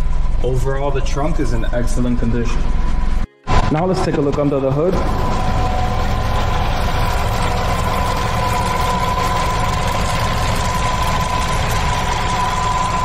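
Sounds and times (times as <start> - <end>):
high engine whine: 0.0 - 13.0
car engine idling: 5.0 - 13.0.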